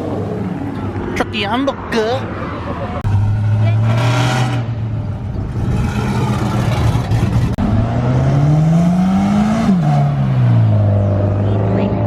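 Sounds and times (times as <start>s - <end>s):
car engine revving: 3.0s - 12.0s.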